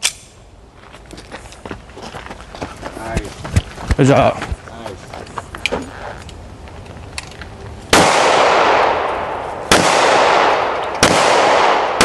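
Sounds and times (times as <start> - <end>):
echoing gunshots: 7.9 - 12.0.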